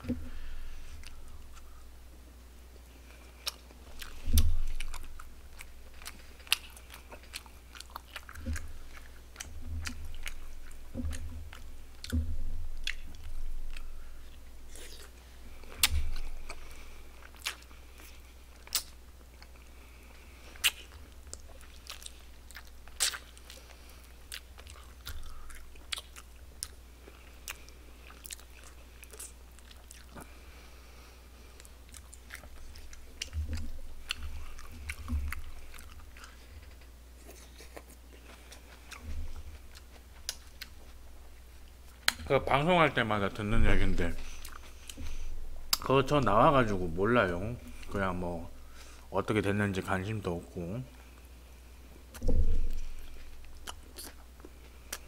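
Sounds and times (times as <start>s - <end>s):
person chewing meat: 0.0s - 2.2s, 2.8s - 49.1s, 50.9s - 55.0s
dull thumps: 32.8s - 35.5s, 52.2s - 53.3s.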